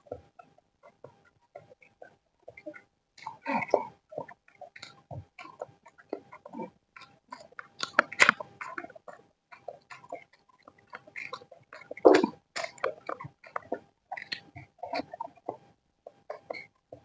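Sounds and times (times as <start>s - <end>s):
faint steady hum: 0.0s - 17.0s
wet chewing smacks: 7.0s - 16.6s.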